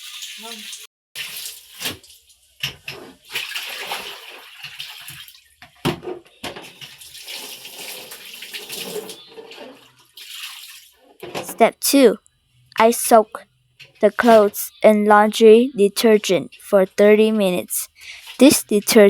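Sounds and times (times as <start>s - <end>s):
water splashing in a basin: 0.0s - 5.8s, 6.6s - 11.5s.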